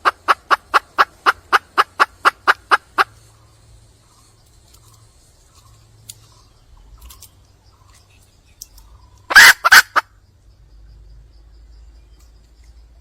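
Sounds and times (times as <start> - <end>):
junglefowl hen calling: 0.0 - 3.5, 8.9 - 10.2.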